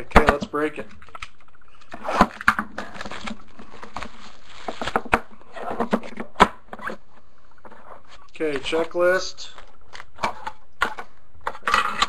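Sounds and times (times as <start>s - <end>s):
plastic wrap crinkling and tearing: 1.0s - 6.2s.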